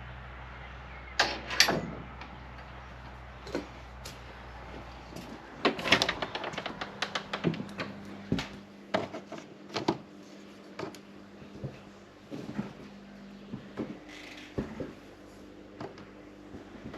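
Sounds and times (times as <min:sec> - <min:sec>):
faint steady hum: 0:00.0 - 0:16.9
clattering knocks and clicks: 0:05.2 - 0:10.0.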